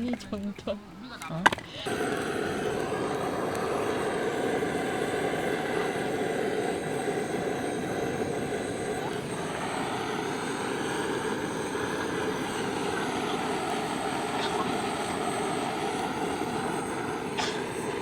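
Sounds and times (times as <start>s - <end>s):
distant engine drone: 0.0s - 18.0s.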